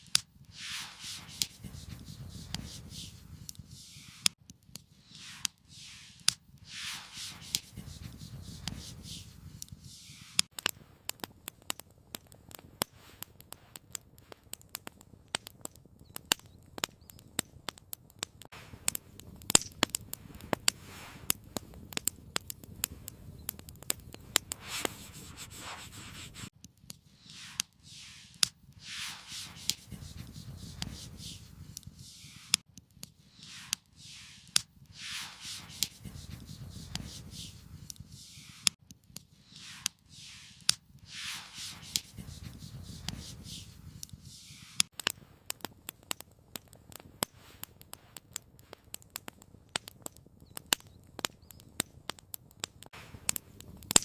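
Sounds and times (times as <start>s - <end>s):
campfire crackling: 0.0s - 54.0s
rustling and scraping: 0.5s - 10.5s, 24.3s - 26.5s, 27.2s - 32.6s, 33.3s - 38.8s.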